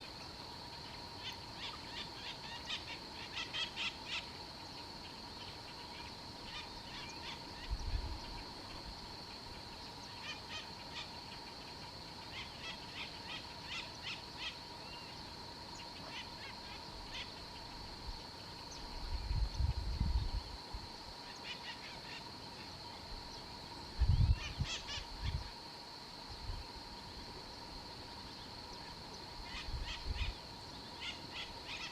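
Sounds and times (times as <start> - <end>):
steady high-pitched whine: 0.0 - 31.9.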